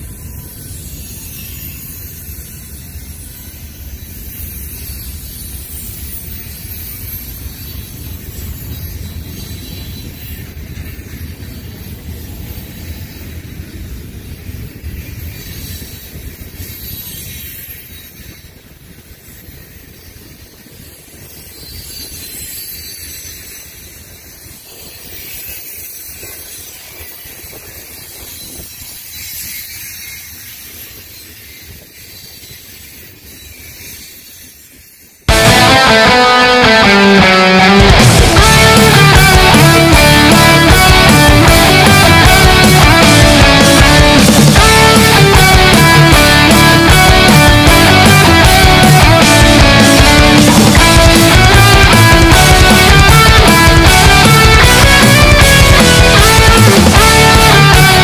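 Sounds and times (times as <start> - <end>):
freight train cars rumbling: 37.9 - 58.0.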